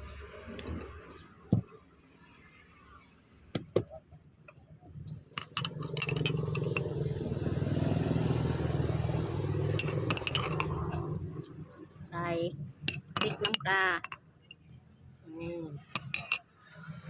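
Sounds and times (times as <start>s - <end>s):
sharp clicks and clinks: 5.4s - 7.0s, 9.6s - 11.0s, 12.9s - 14.6s, 15.8s - 16.4s.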